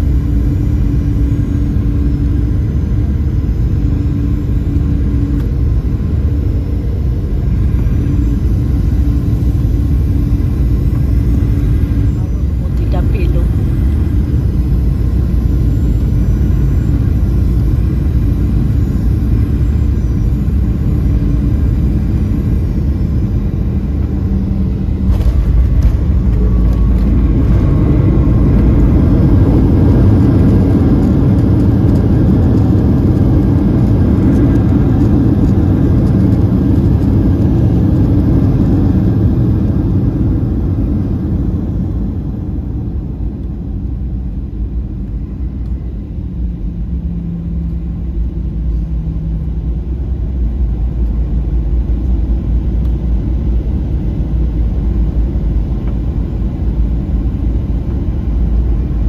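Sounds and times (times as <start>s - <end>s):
jet airliner cabin rumble: 0.0s - 59.0s
reverse thrust and braking: 21.8s - 34.6s.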